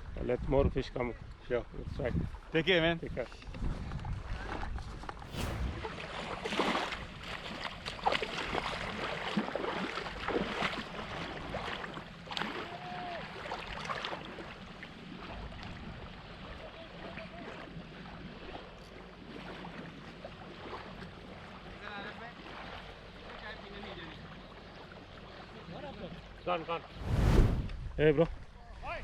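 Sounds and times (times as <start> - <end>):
wind on microphone: 3.5 - 7.4, 26.9 - 28.4.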